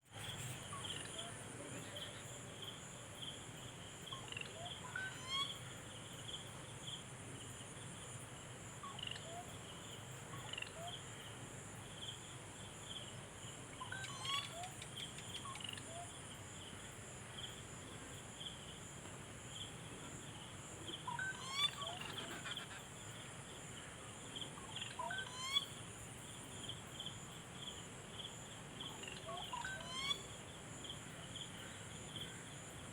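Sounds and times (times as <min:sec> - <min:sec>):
insects trilling chorus: 0:12.0 - 0:32.9.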